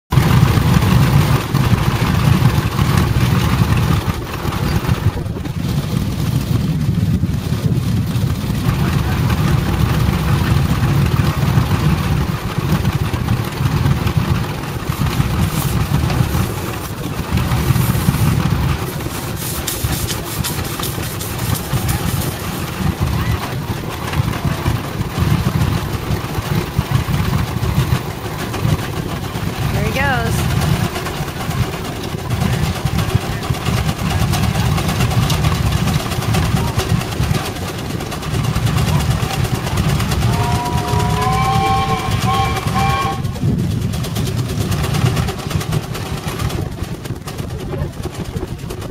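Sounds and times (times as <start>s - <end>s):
steam traction engine rumbling: 0.1s - 48.9s.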